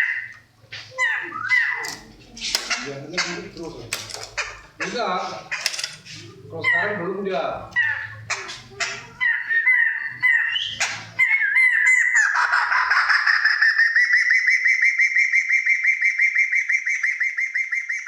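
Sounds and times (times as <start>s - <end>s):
songbird singing: 0.0s - 7.1s.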